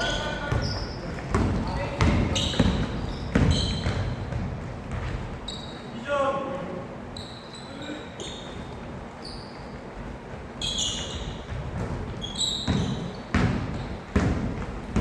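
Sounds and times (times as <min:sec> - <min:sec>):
basketball bouncing on court: 0:00.0 - 0:05.5, 0:10.8 - 0:15.0
shoes squeaking: 0:00.0 - 0:06.1, 0:07.1 - 0:15.0.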